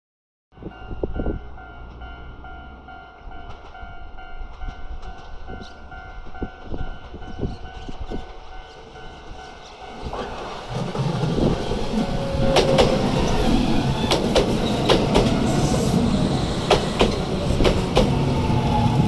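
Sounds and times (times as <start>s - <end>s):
train rumbling: 0.6s - 19.0s
wheels knocking on rails: 10.7s - 15.8s, 16.6s - 18.4s.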